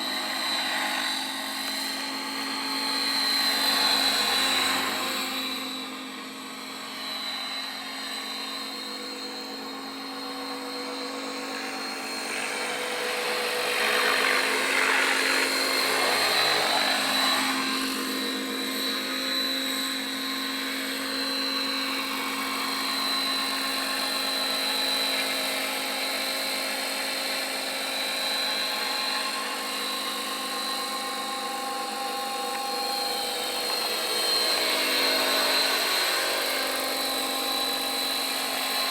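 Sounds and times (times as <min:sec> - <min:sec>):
helicopter rotor noise: 0:00.0 - 0:38.9
rc helicopter motor whine: 0:00.0 - 0:38.9.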